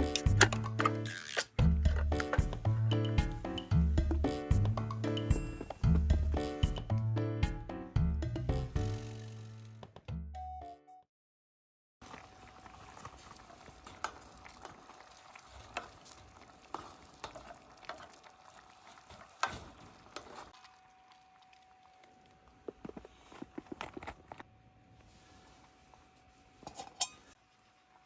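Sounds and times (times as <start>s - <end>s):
food sizzling over campfire: 12.0s - 20.5s.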